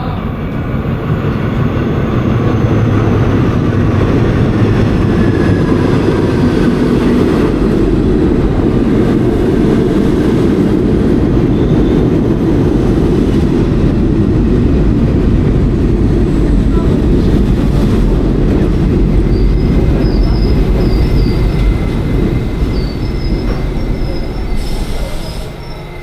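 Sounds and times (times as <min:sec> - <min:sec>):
subway train rumbling: 0:00.0 - 0:26.0.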